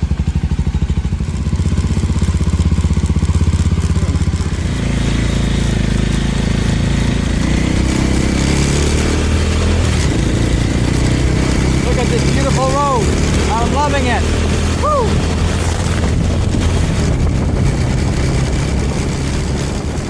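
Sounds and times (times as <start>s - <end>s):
motorcycle engine accelerating: 0.0s - 20.0s
wind rush: 13.0s - 20.0s.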